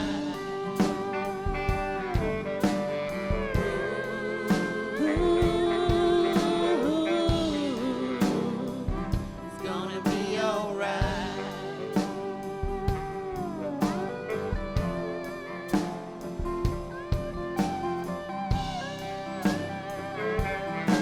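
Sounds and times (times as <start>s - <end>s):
guitar: 0.0s - 21.0s
steady drum beat: 0.0s - 21.0s
person singing held notes: 2.5s - 12.6s.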